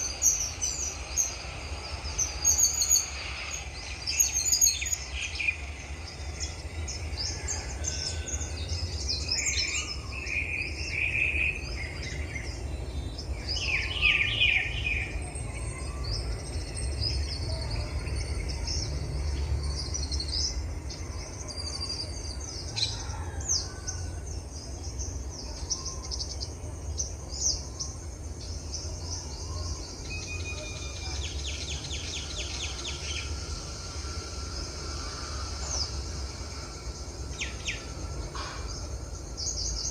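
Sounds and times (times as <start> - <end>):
steady low rumble: 0.0 - 13.6, 30.8 - 39.9
songbirds singing and chirping: 0.0 - 39.9.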